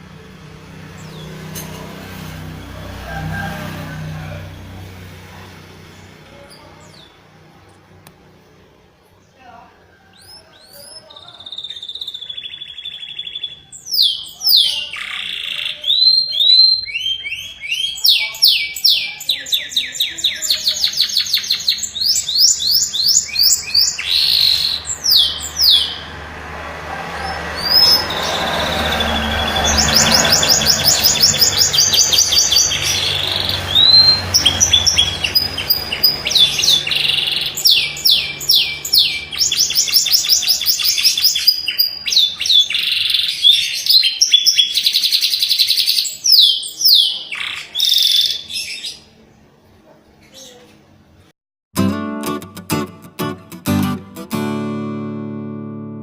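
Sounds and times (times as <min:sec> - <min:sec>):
canary singing trills: 0:08.3 - 0:26.2, 0:27.1 - 0:49.2.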